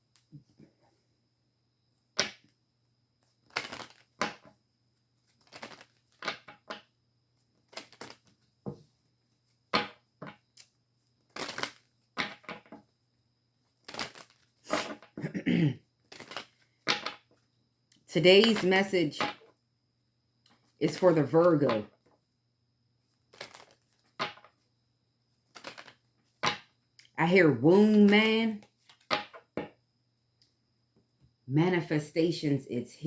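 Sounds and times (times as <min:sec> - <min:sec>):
cards being shuffled: 0:03.4 - 0:04.5, 0:05.3 - 0:06.8, 0:07.6 - 0:08.4, 0:11.3 - 0:12.8, 0:13.8 - 0:15.1, 0:16.0 - 0:17.2, 0:23.3 - 0:24.6, 0:25.5 - 0:26.7.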